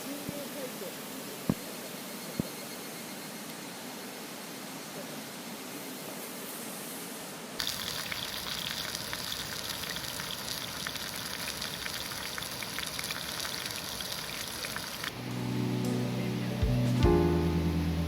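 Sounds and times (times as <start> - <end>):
steady even hiss: 0.0 - 10.2, 13.8 - 18.0
campfire crackling and popping: 7.6 - 15.5.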